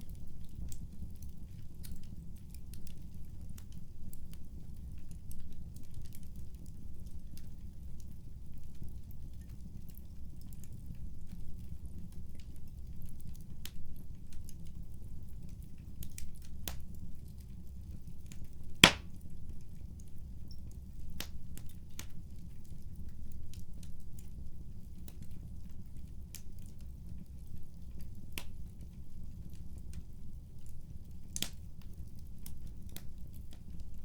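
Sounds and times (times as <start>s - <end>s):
fire crackling in fireplace: 0.1s - 10.7s, 19.7s - 34.0s
loud fire pop: 18.8s - 19.0s.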